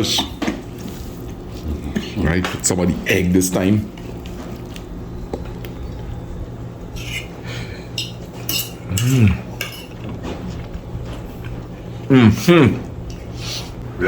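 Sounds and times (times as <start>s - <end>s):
cutlery scraping on a plate: 7.0s - 10.6s.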